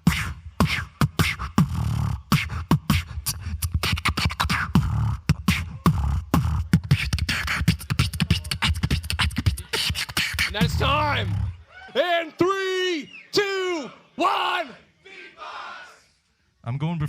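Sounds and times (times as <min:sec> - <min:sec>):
person beatboxing: 0:00.0 - 0:11.6.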